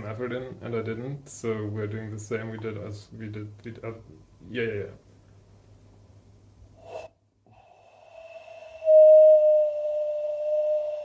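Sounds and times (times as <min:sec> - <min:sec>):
short breath: 0:06.8 - 0:09.1
long whistled note: 0:06.8 - 0:11.0.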